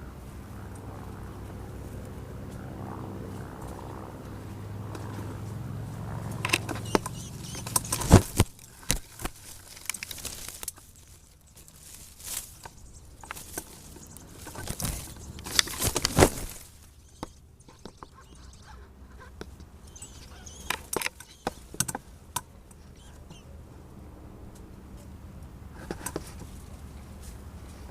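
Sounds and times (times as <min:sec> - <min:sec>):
rustling: 0:06.3 - 0:18.1.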